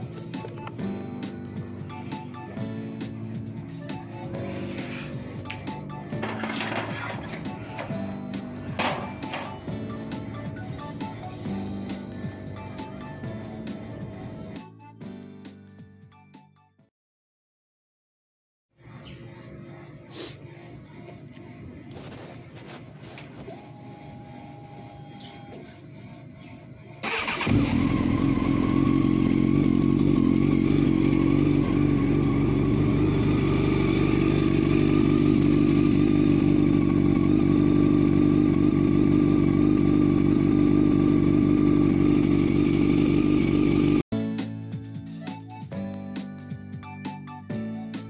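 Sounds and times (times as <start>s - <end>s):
motorcycle engine starting: 0.0s - 14.7s, 27.0s - 44.0s
motorcycle engine idling: 27.6s - 43.8s.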